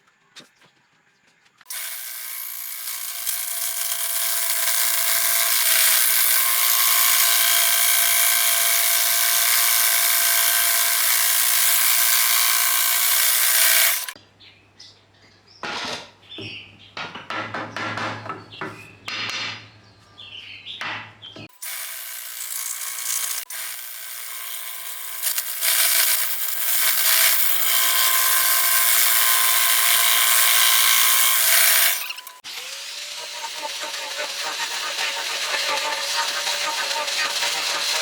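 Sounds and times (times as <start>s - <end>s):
power tool cutting wood: 1.7s - 14.2s, 21.4s - 38.0s.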